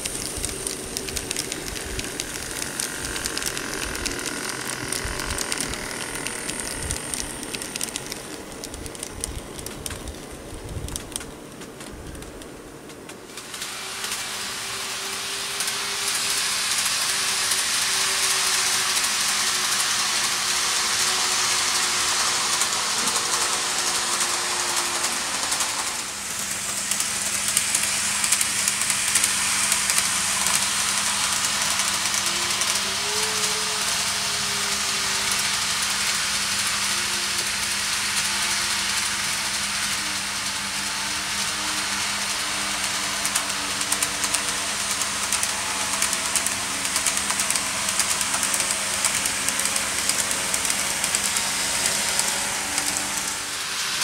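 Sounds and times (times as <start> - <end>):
faint motor whine: 0.0 - 54.0
train rushing hiss: 0.0 - 54.0.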